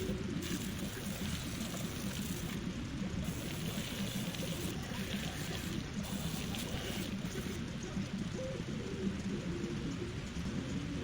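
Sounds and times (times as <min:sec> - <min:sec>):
hose water splashing: 0:00.4 - 0:02.6, 0:03.2 - 0:07.6.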